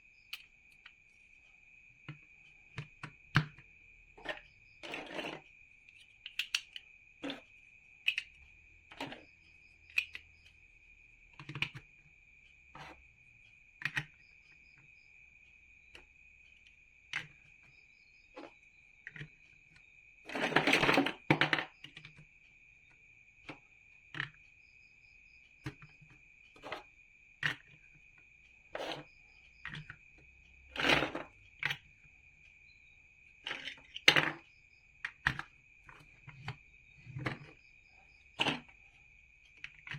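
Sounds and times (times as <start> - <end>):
plastic bricks clicking: 4.2 - 9.2, 9.9 - 10.3, 11.3 - 11.8, 13.8 - 14.2, 28.7 - 30.0, 30.7 - 31.9, 33.4 - 34.4, 35.0 - 37.5, 38.4 - 38.7, 39.5 - 39.9.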